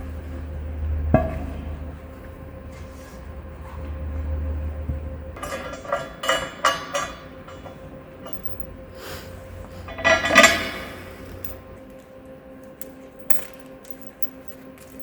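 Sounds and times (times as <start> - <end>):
steel parts clanking: 5.4 - 8.9, 9.8 - 11.7, 12.8 - 15.0.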